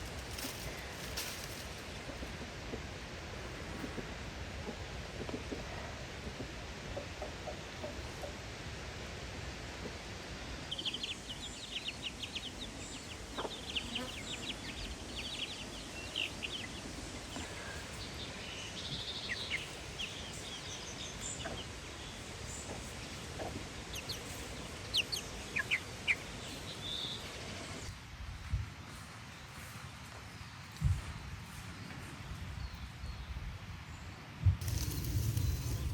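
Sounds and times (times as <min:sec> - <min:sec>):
birds chirping: 0:10.7 - 0:27.9.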